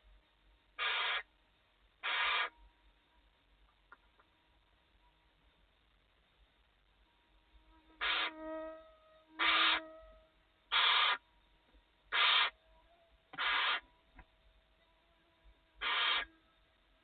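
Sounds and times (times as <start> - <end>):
owl rasping hiss calls: 0.8 - 1.3, 2.0 - 2.5, 8.0 - 8.6, 9.3 - 10.0, 10.7 - 11.2, 12.1 - 12.6, 13.3 - 13.9, 15.8 - 16.4.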